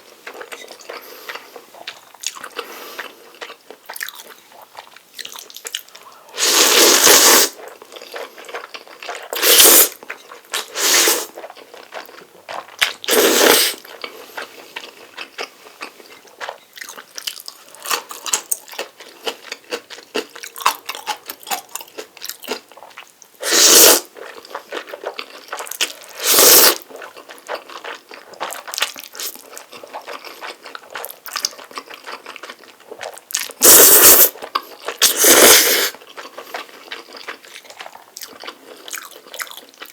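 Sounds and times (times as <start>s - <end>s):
wet chewing: 0.2s - 39.9s
slurping noodles: 6.3s - 7.6s, 9.3s - 10.0s, 10.6s - 11.4s, 13.1s - 13.8s, 23.4s - 24.1s, 26.1s - 26.8s, 33.6s - 34.4s, 35.0s - 36.0s.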